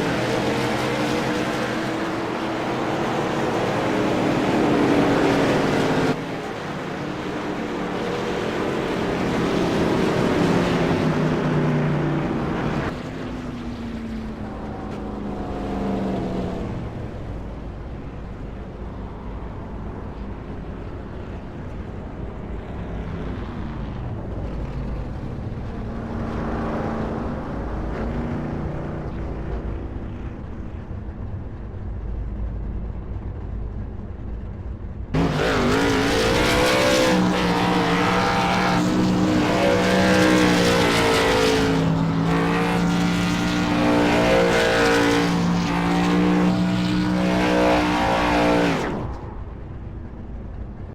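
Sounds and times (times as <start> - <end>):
close race car engine: 0.0 - 50.9
race car passing: 35.2 - 49.6.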